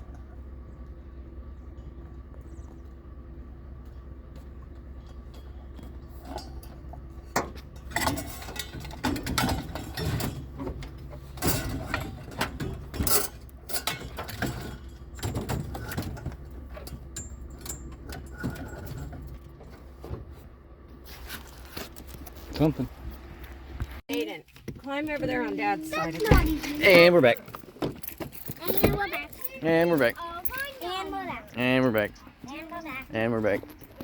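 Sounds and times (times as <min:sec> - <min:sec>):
low hum: 0:00.0 - 0:24.0
clicking knocking and rattling: 0:05.2 - 0:19.9.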